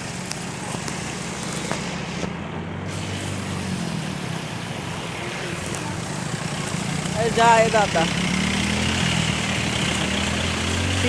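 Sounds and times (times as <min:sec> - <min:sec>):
constant rushing noise: 0:00.0 - 0:11.0
engine humming: 0:00.0 - 0:11.0.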